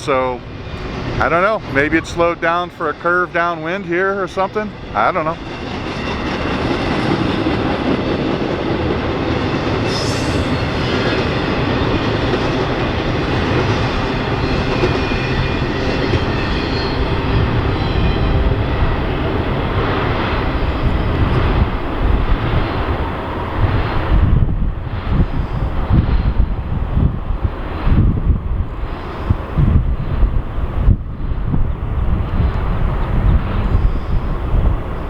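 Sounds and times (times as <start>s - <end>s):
freight train cars rolling: 0.8s - 24.3s.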